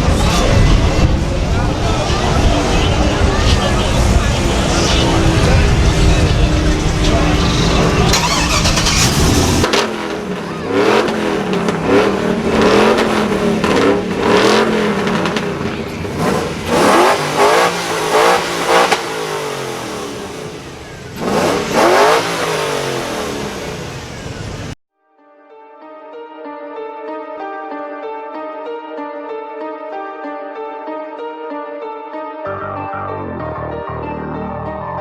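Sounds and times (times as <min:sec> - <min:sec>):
truck engine revving: 0:00.0 - 0:24.8.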